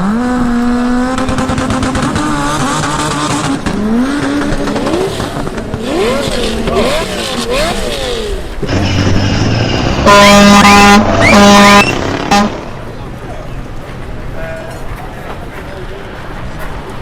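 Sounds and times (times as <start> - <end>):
car engine revving: 0.0 - 12.9.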